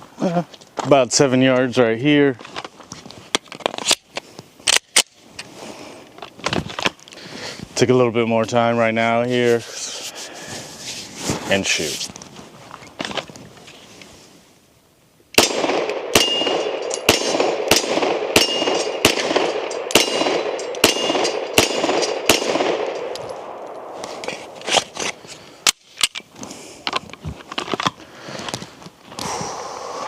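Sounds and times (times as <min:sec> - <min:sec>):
pistol shots: 0:15.4 - 0:24.2
steel target clanging: 0:18.4 - 0:23.4.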